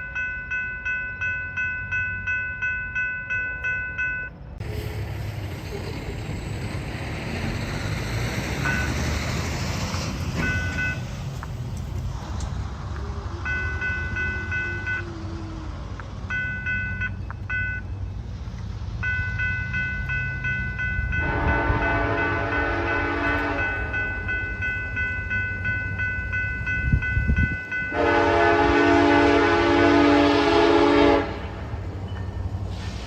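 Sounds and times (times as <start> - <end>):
crossing bell ringing: 0.0 - 4.6, 8.4 - 9.5, 10.3 - 11.3, 13.3 - 15.3, 16.2 - 18.3, 19.0 - 32.6
train rumble: 0.0 - 33.0
locomotive horn blasts: 21.1 - 24.2, 27.9 - 31.7.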